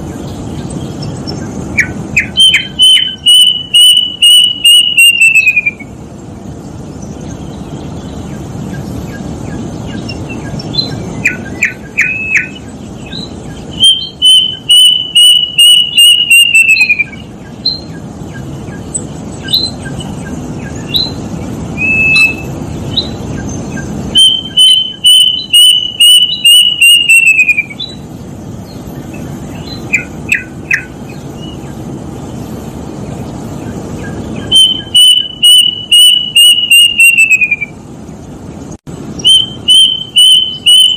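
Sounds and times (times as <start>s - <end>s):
cuckoo whistled calls: 0.0s - 6.0s, 8.7s - 28.1s, 29.0s - 31.7s, 34.0s - 37.8s, 39.2s - 40.9s.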